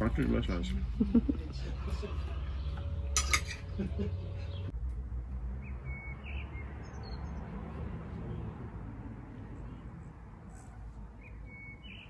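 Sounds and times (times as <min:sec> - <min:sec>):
bird chirps: 0:05.6 - 0:07.4, 0:11.2 - 0:12.0.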